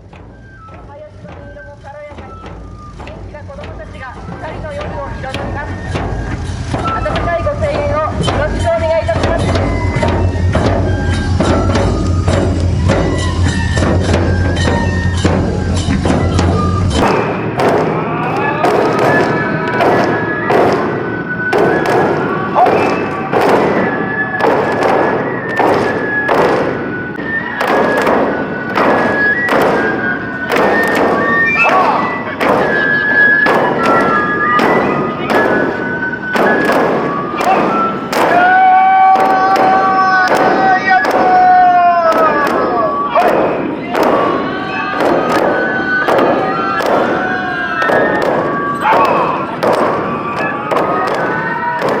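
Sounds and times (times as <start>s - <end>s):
bamboo flute melody: 0.0s - 52.0s
taiko drums beating: 0.0s - 52.0s.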